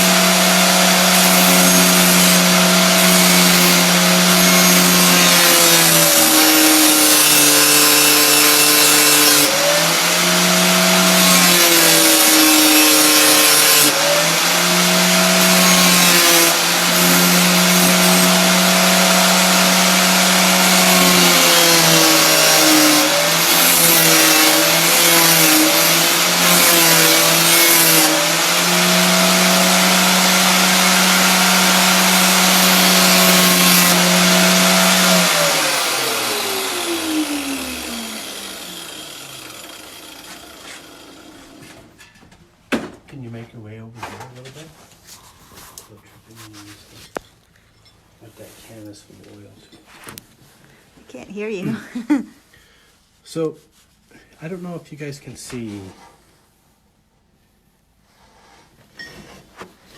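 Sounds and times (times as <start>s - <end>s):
electric grinder motor humming: 0.0s - 41.7s.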